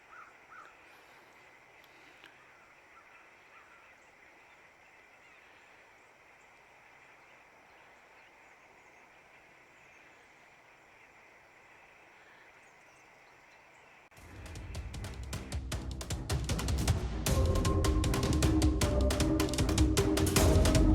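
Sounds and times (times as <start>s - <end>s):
distant bird calls: 0.0s - 15.7s.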